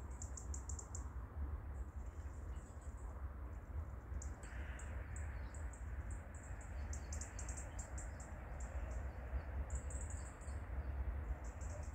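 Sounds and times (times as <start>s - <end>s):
small birds chirping: 4.2s - 11.9s.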